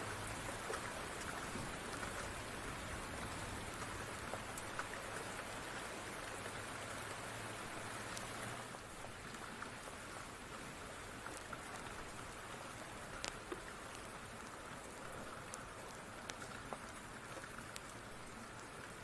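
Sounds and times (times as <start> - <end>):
steady rain falling: 0.0 - 19.0
sharp pops and ticks: 13.1 - 18.3.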